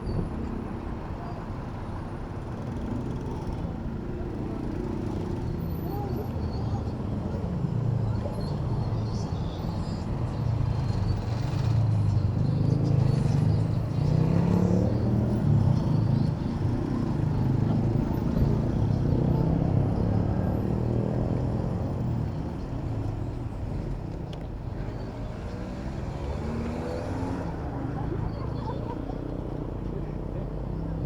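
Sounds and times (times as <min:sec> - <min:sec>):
vehicle engines rumbling: 0:00.0 - 0:31.0.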